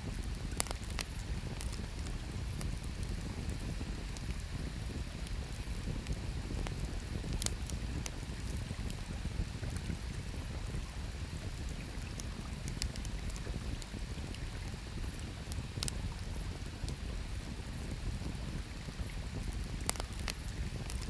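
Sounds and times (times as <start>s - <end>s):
campfire crackling: 0.1s - 17.2s, 17.8s - 21.0s
sharp pops of burning wood: 0.4s - 2.6s, 19.8s - 21.0s.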